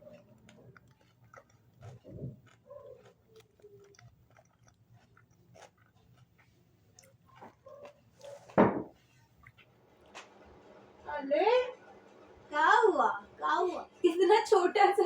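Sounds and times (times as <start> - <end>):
chewing and biting sandwich: 0.0 - 10.6.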